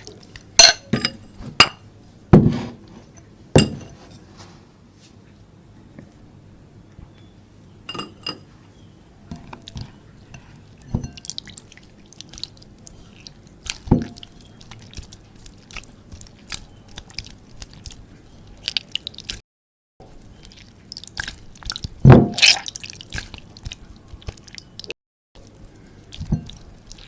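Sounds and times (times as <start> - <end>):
glass clink: 0.6 - 1.8, 3.6 - 4.0, 7.9 - 8.5
slime squelching and popping: 20.4 - 24.9.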